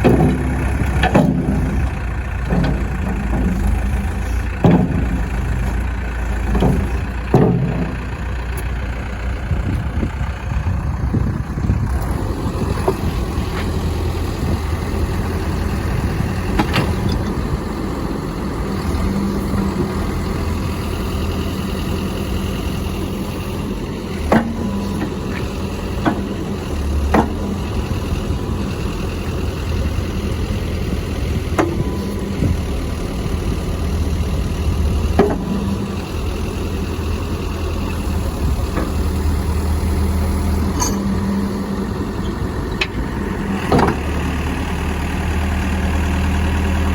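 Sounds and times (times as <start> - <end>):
diesel engine running: 0.0 - 46.9
short sharp clanks: 40.7 - 41.2.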